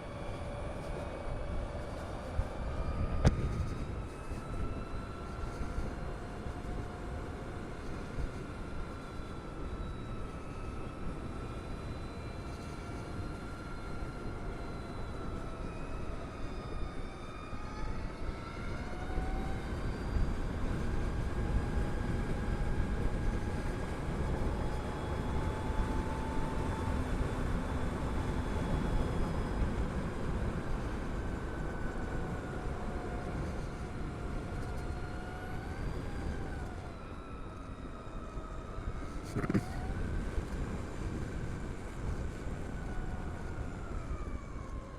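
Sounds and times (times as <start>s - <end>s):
wind rush: 1.3s - 5.8s.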